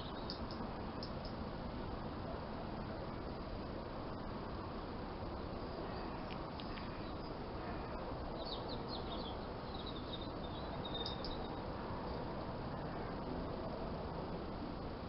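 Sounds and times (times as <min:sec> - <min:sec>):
small birds chirping: 0:00.0 - 0:01.4, 0:05.6 - 0:13.3
background hiss and rumble: 0:00.0 - 0:15.0.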